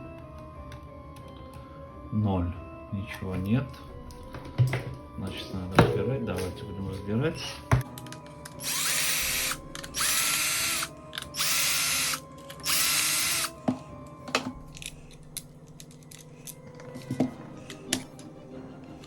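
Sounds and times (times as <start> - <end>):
cordless screwdriver whining: 8.0 - 13.6.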